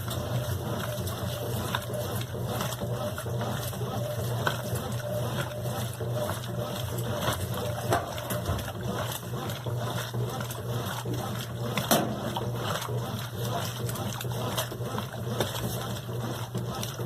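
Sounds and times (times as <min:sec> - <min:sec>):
washing machine motor hum: 0:00.0 - 0:17.0
water sloshing: 0:00.0 - 0:17.0
small knocks and splashes: 0:07.2 - 0:17.0.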